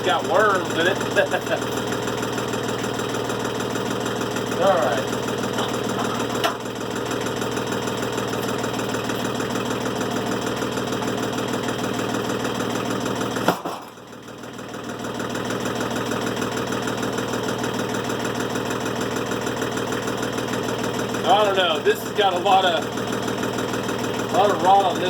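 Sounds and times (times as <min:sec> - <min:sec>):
sawmill engine idling: 0:00.0 - 0:25.0.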